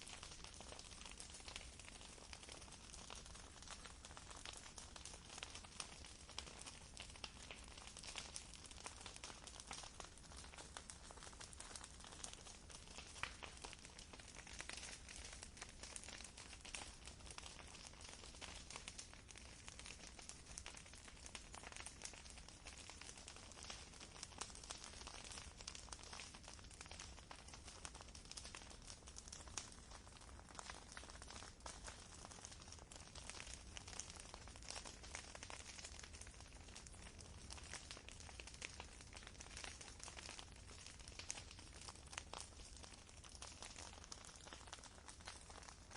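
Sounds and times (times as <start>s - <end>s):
campfire crackling: 0.0s - 45.9s.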